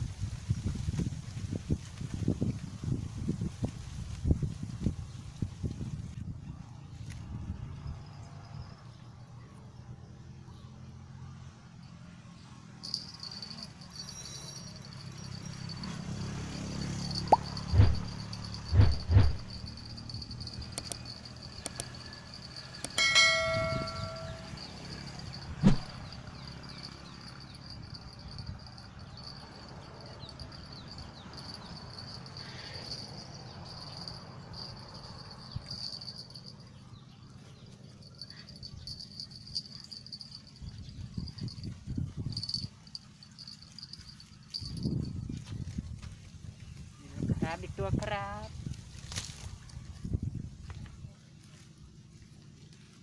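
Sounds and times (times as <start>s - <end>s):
insects droning: 12.6s - 44.9s
bell ringing: 12.8s - 36.7s
sharp knock: 25.6s - 26.0s.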